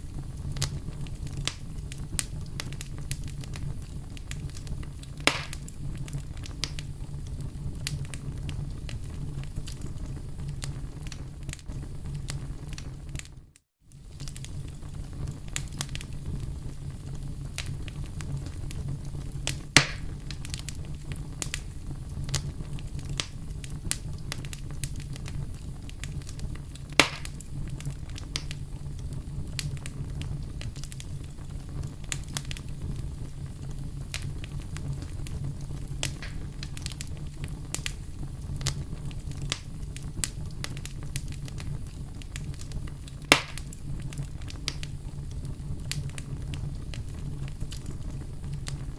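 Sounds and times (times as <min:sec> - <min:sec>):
loud fire pops: 0:00.0 - 0:48.9
low fire rumble: 0:00.0 - 0:48.9
wood fire crackling: 0:00.0 - 0:48.9.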